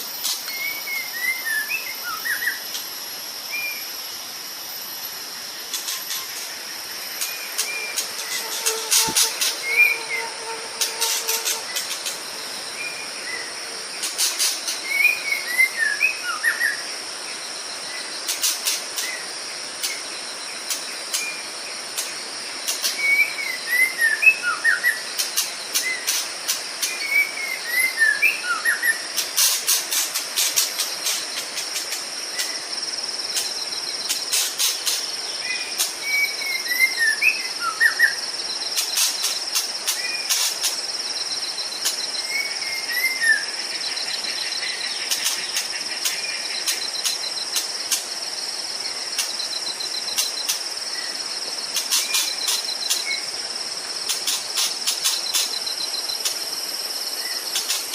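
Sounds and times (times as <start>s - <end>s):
high-pitched insect chorus: 0.0s - 57.9s
bird singing whistled notes: 0.2s - 2.6s, 7.2s - 12.0s, 14.8s - 16.8s, 23.0s - 25.0s, 26.9s - 29.0s, 35.5s - 38.2s, 42.1s - 44.0s.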